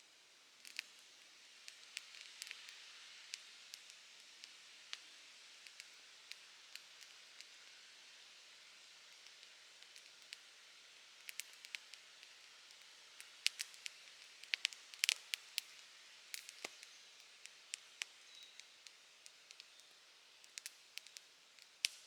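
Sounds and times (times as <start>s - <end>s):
wood fire crackling: 11.2s - 22.0s.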